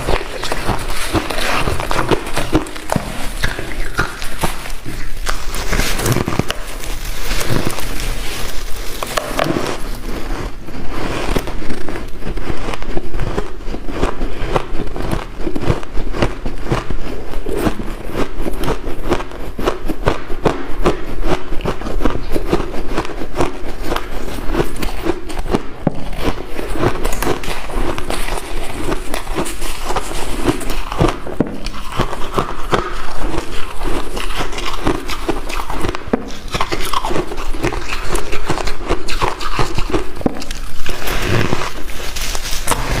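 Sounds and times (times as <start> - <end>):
ice crunching: 0.0 - 19.6, 21.7 - 43.0.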